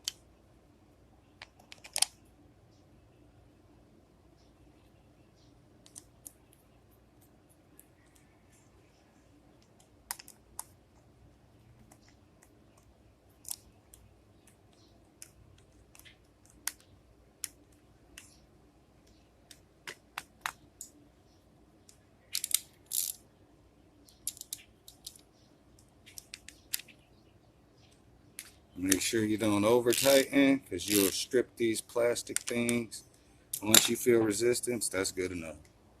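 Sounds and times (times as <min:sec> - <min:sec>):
screwdriver and small parts clicking: 0:01.4 - 0:02.2, 0:21.8 - 0:23.2, 0:24.1 - 0:26.9, 0:29.9 - 0:30.3, 0:32.2 - 0:32.8.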